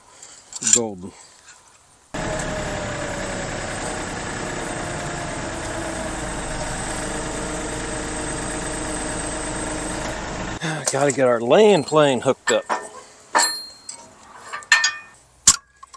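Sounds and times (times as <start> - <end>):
tractor diesel engine running: 2.2 - 10.6.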